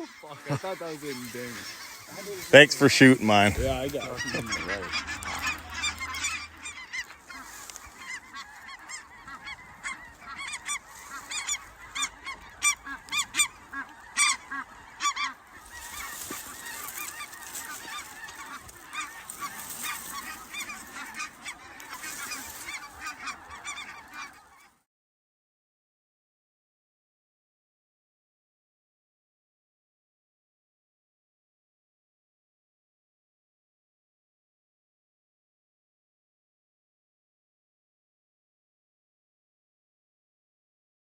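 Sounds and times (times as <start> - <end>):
geese honking: 0.0 - 24.7.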